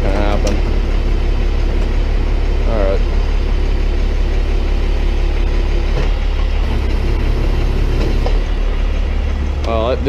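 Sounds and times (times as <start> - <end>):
steady hum: 0.0 - 10.0
truck engine running: 0.0 - 10.0
hydraulic crusher pressing trash: 5.9 - 8.6.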